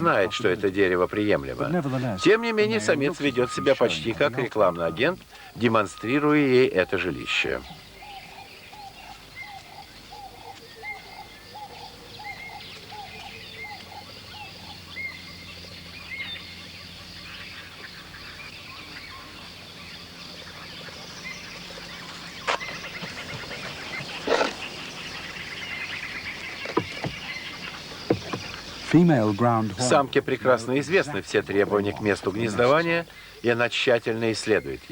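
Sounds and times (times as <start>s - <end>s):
wild birds calling: 0.0s - 34.9s
high bird chirps: 2.1s - 5.1s.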